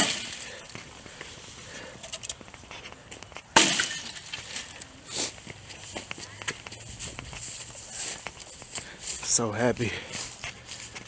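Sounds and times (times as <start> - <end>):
leaves rustling: 2.5 - 11.0
branches crashing onto a pile: 3.6 - 4.4.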